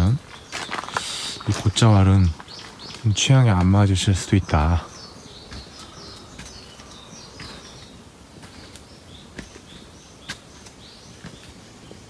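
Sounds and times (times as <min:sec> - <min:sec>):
birds chirping: 0:00.0 - 0:12.0
soft outdoor hush: 0:00.0 - 0:12.0.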